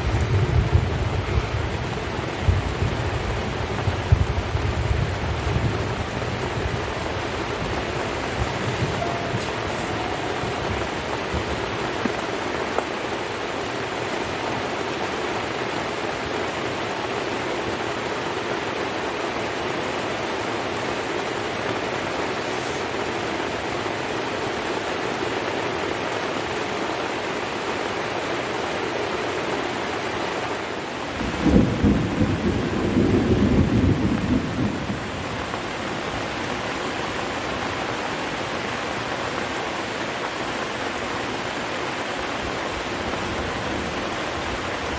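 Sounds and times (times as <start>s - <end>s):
low rumble of thunder: 0.0s - 12.0s, 31.2s - 35.7s
heavy rain falling: 0.0s - 44.9s.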